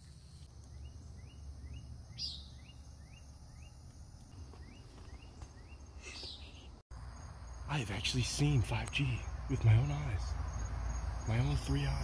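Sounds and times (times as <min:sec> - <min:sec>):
low wind rumble: 0:07.0 - 0:12.0.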